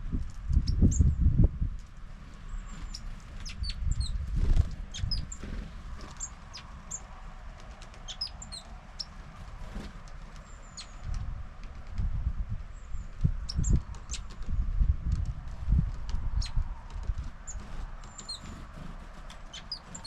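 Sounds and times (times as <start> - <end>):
small birds chirping: 2.2 - 12.0, 12.6 - 20.0
bird wings fluttering: 2.6 - 12.1.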